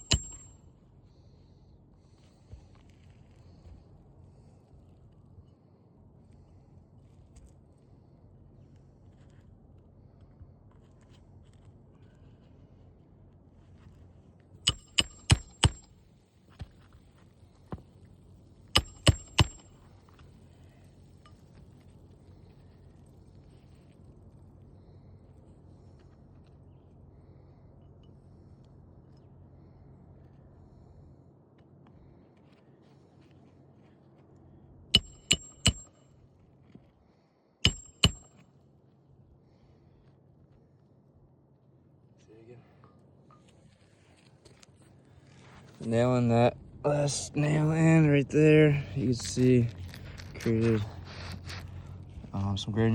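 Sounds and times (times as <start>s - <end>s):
hammer striking roofing nails: 0.0s - 0.5s, 14.7s - 15.9s, 18.7s - 19.8s, 35.0s - 35.9s, 37.7s - 38.4s.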